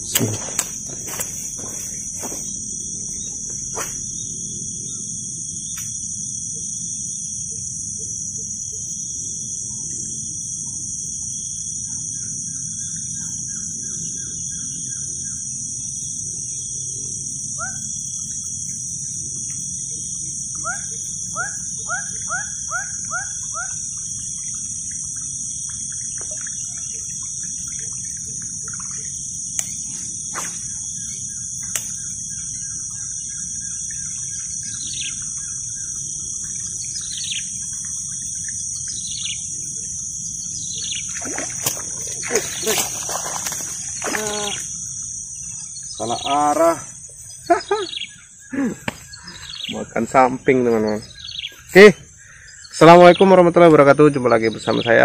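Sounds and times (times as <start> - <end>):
high-pitched insect drone: 0.0 - 55.0
sharp clicks: 0.1 - 0.8
bird rising calls: 17.6 - 17.9, 20.5 - 25.8, 40.2 - 53.1.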